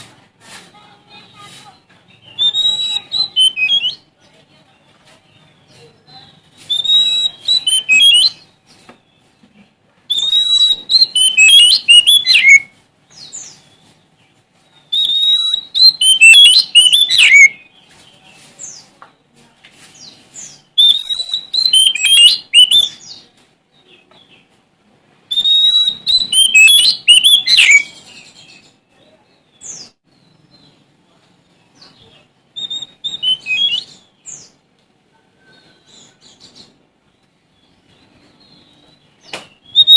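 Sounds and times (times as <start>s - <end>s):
bird singing whistled phrases: 2.2s - 4.1s, 6.6s - 8.4s, 10.1s - 12.7s, 14.8s - 17.7s, 20.8s - 23.2s, 25.3s - 28.7s, 32.6s - 34.5s, 39.6s - 39.9s.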